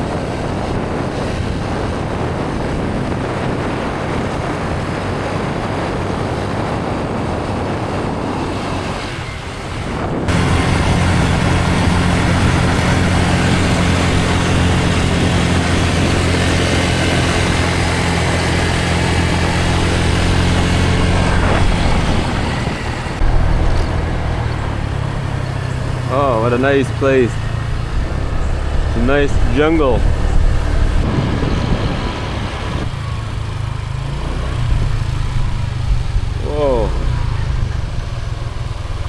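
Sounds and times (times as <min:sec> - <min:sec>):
scooter engine running: 0:00.0 - 0:39.0
wind on microphone: 0:00.0 - 0:39.0.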